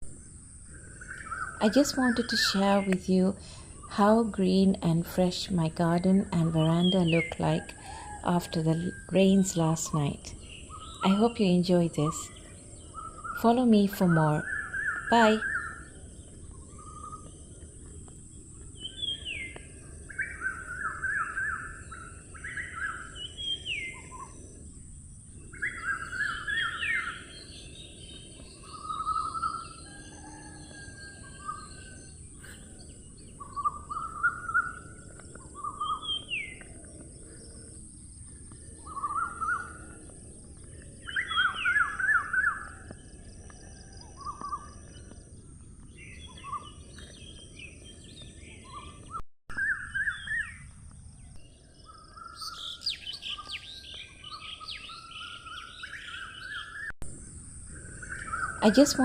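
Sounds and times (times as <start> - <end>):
songbird singing: 0.0 - 59.0
low background hum: 0.1 - 45.8.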